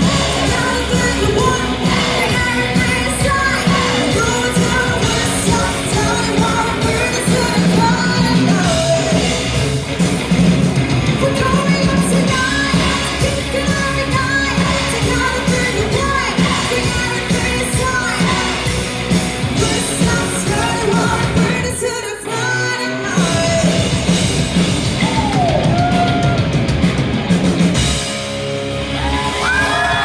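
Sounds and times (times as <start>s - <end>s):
woman singing: 0.0s - 9.4s, 11.1s - 18.9s, 19.6s - 23.9s
live rock band playing: 0.0s - 30.0s.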